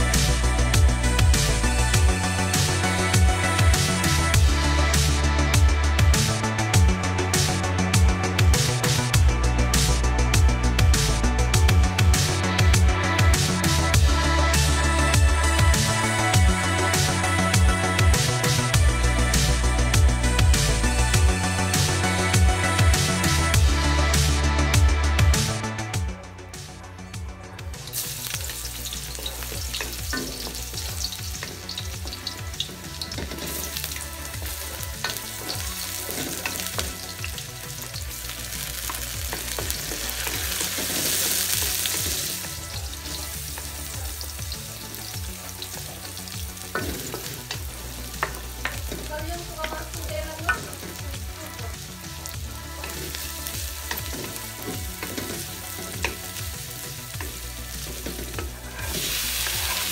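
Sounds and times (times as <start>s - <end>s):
garlic and onions sizzling in oil: 0.0s - 6.8s, 27.7s - 59.9s
wooden spatula scraping pan: 57.9s - 59.9s.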